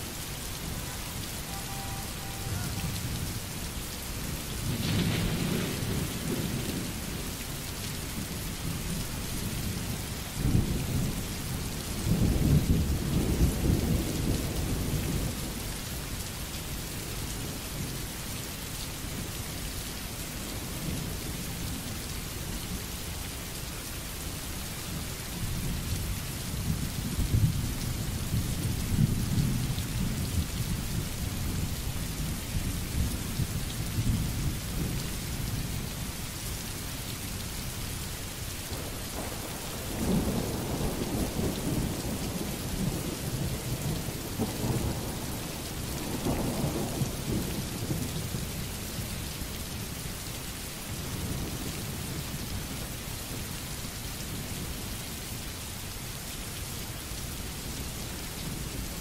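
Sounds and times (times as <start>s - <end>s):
steady rain: 0.0s - 59.0s
rolling thunder: 4.6s - 7.2s, 38.7s - 48.1s.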